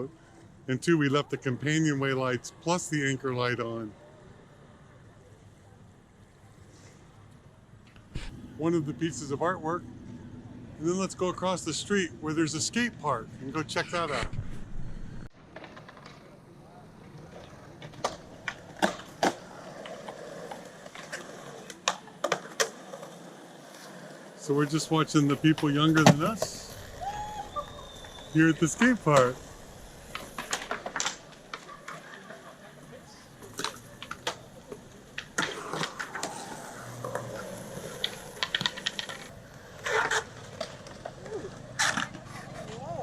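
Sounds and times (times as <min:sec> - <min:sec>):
skateboard wheels rolling: 0:12.4 - 0:43.0
skateboards clacking on concrete: 0:15.4 - 0:43.0.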